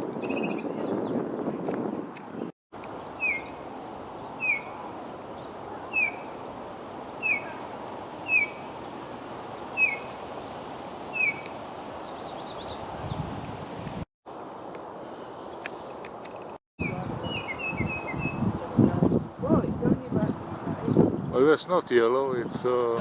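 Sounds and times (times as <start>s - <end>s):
bird calling down-slurred note: 4.4s - 4.9s, 5.8s - 6.4s, 7.2s - 8.7s, 9.8s - 10.1s.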